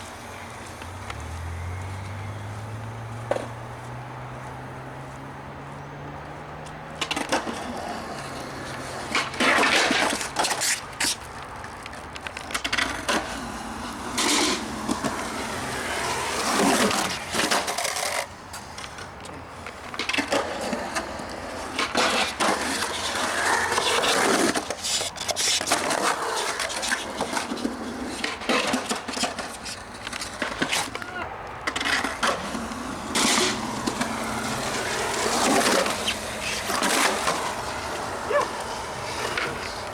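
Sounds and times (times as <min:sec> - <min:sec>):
skateboard rolling: 0:00.0 - 0:39.9
skateboard clacks and impacts: 0:19.7 - 0:39.9.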